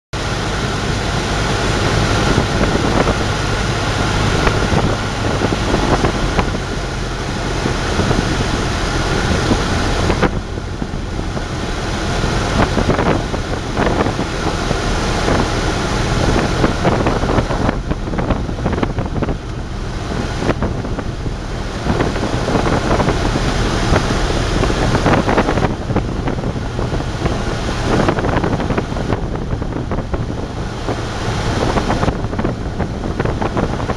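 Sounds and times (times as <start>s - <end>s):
piston aircraft engine running: 0.1s - 33.9s
heavy wind noise: 0.2s - 33.9s.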